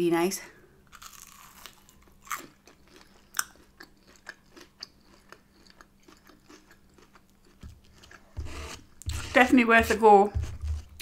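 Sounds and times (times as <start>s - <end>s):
crunchy biting and chewing: 0.8s - 9.3s.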